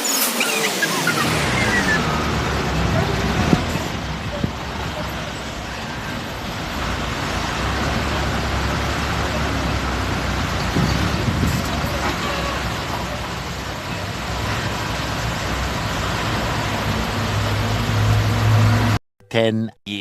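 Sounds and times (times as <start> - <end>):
falling tones: 0.0 - 4.2
vehicle rumble and road noise: 0.0 - 19.0.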